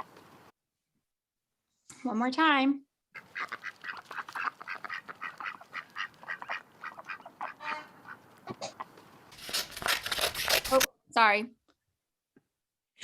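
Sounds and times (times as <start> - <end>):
duck quacking rapidly: 3.2 - 8.8.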